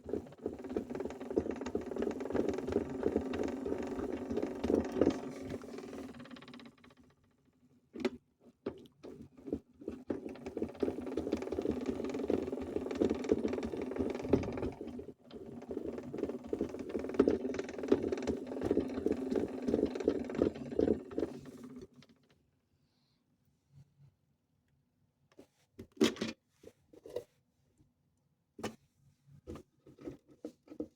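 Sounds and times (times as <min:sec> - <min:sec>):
drum rattling and clicking: 0:00.2 - 0:07.0, 0:10.1 - 0:15.0, 0:15.6 - 0:22.0.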